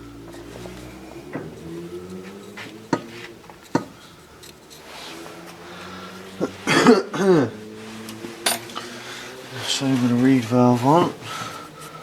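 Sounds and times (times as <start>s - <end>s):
person coughing: 6.5s - 7.6s.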